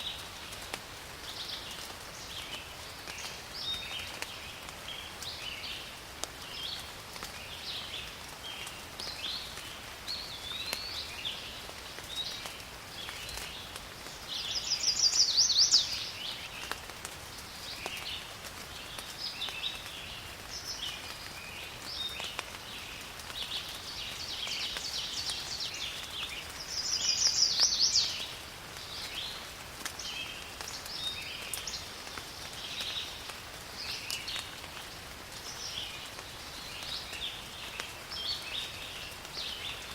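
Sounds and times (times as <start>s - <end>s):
light rain: 0.0s - 39.9s
raindrop ticks: 0.1s - 39.9s
birds chirping: 10.1s - 16.8s, 23.3s - 29.4s.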